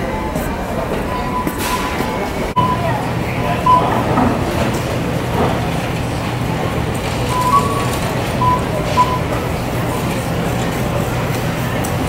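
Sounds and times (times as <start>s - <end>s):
short high tones: 1.1s - 4.1s, 7.3s - 9.4s.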